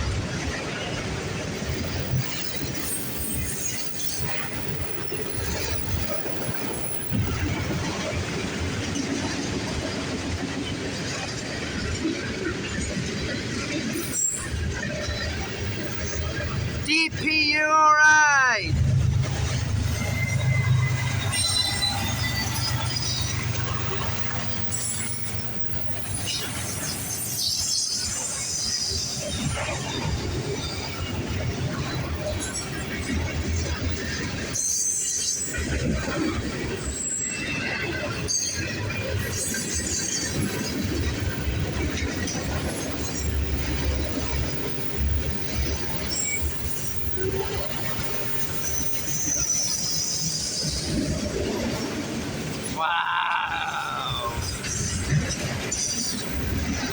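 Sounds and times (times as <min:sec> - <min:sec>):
train wheels squealing: 0:01.9 - 0:07.5, 0:13.7 - 0:16.4, 0:19.4 - 0:31.2, 0:33.6 - 0:51.2, 0:54.2 - 0:56.9
locomotive engine droning: 0:18.7 - 0:25.3
high wheel squeals: 0:19.7 - 0:23.7.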